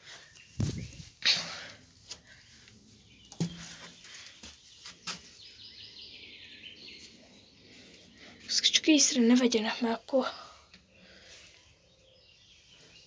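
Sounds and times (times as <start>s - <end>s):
small bird singing: 0.0s - 1.3s, 2.2s - 13.0s
sharp knocks and thumps: 3.3s - 3.8s.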